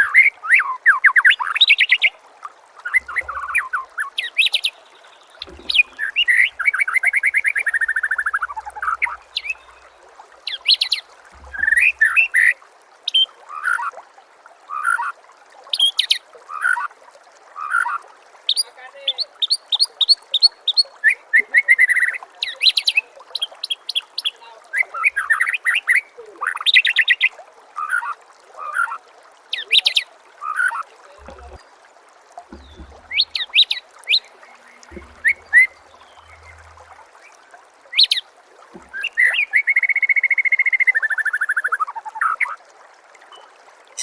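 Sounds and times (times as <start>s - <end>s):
gurgling water: 0.0s - 44.0s
songbird singing trills: 2.9s - 9.9s, 32.5s - 37.4s.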